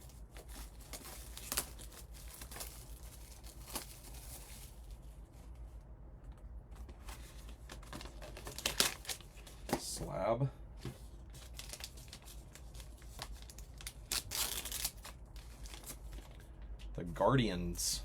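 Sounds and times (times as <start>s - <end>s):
packaging crinkling and tearing: 0.0s - 5.0s, 6.9s - 9.9s, 11.2s - 16.9s.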